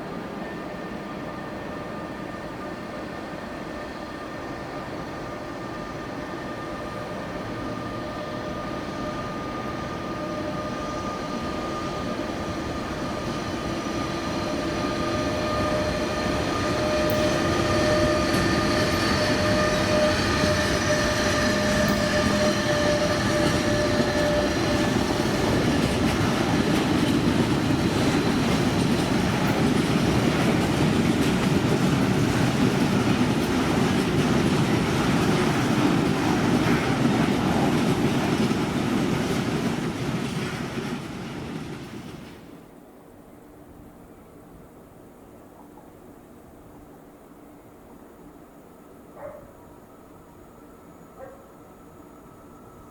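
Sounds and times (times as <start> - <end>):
whine of steady tones: 0.0 - 38.3, 42.1 - 52.9
train wheels rolling on rails: 0.0 - 44.6
clickety-clack of wagons: 13.2 - 42.4.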